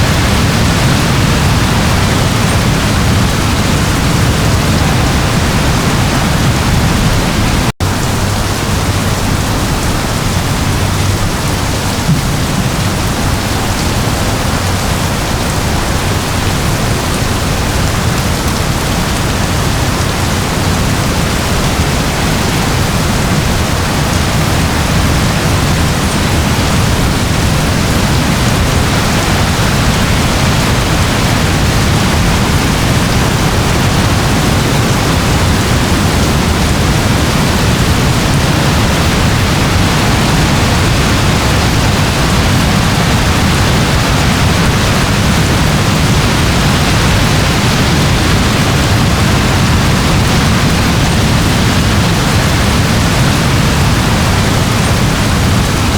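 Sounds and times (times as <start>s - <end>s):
steady rain: 0.0s - 55.9s.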